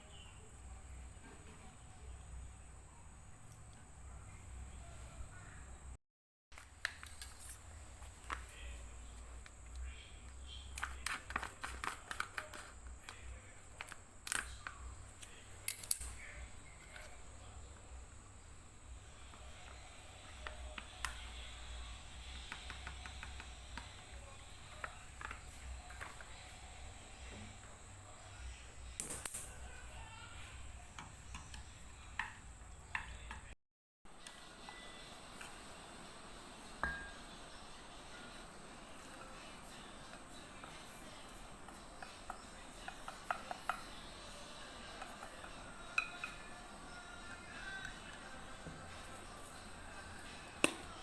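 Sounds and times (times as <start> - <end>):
faint low hum: 0.0 - 6.0, 6.6 - 51.0
low background noise: 0.0 - 51.0
small objects clicking and tapping: 9.4 - 17.9, 19.2 - 21.6, 22.2 - 26.6, 28.8 - 29.8, 30.9 - 33.6, 39.0 - 51.0.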